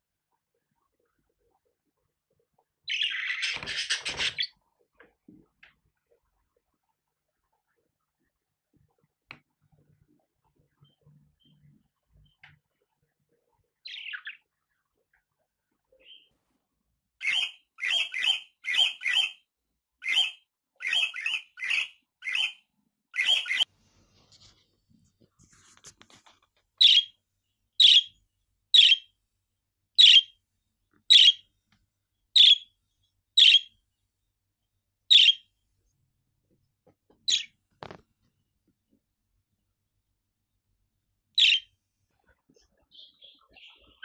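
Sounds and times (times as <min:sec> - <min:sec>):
budgerigar chirping: 0:17.2 - 0:19.4, 0:20.0 - 0:22.6, 0:23.2 - 0:23.6, 0:26.8 - 0:27.2, 0:27.8 - 0:28.2, 0:28.8 - 0:29.1, 0:30.0 - 0:30.4, 0:31.1 - 0:31.4, 0:32.4 - 0:32.7, 0:33.4 - 0:33.7, 0:35.1 - 0:35.5, 0:37.3 - 0:37.5, 0:41.4 - 0:41.7.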